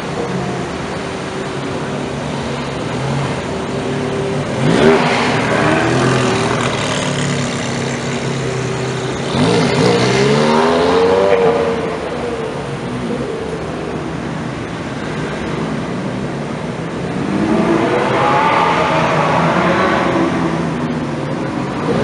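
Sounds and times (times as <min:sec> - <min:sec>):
sports car engines idling: 0:00.0 - 0:17.2.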